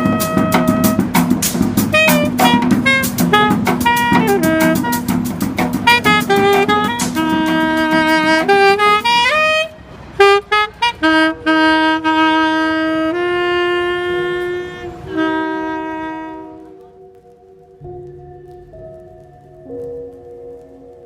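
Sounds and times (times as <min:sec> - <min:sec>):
drum hits: 0:00.0 - 0:08.8
saxophone slow melody: 0:00.0 - 0:21.0.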